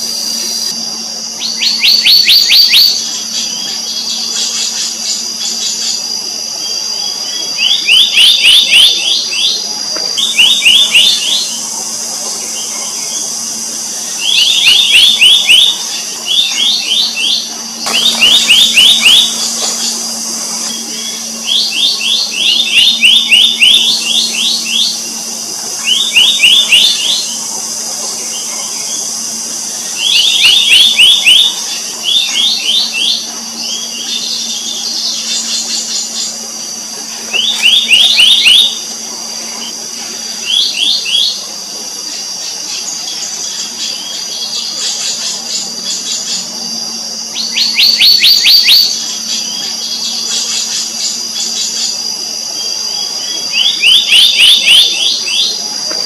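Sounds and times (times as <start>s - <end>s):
faint low hum: 0.0s - 56.0s
high insect buzz: 0.0s - 56.0s
bird calling ringing notes: 10.2s - 36.4s, 53.3s - 55.6s.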